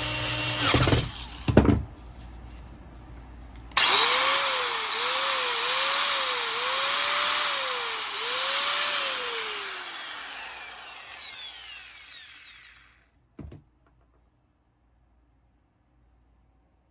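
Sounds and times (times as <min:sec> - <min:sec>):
angle grinder motor running: 0:03.8 - 0:12.9.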